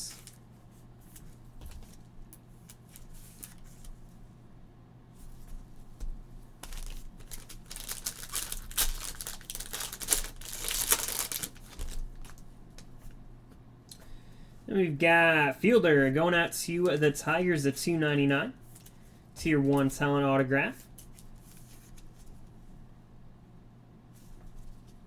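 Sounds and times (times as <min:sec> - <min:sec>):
packaging crinkling and tearing: 0:06.6 - 0:12.9.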